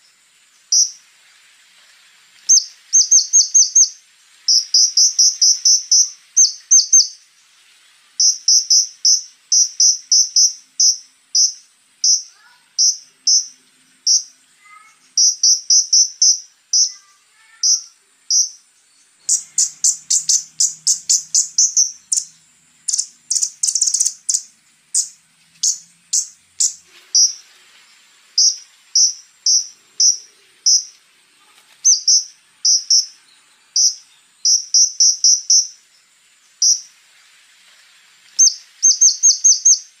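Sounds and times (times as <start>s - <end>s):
bird chirping: 0.0s - 1.1s, 2.4s - 7.3s, 8.2s - 37.0s, 38.2s - 40.0s
bird ticking notes: 19.3s - 27.4s, 28.4s - 31.0s, 33.8s - 35.7s.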